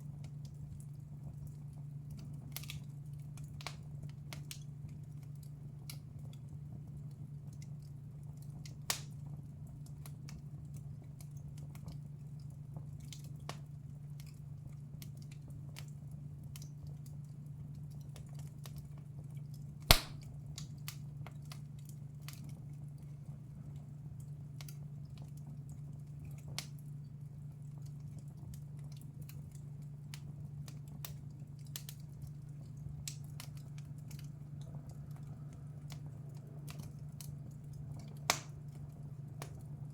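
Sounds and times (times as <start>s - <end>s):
wood fire crackling: 0.0s - 39.9s
loud fire pop: 19.9s - 20.2s.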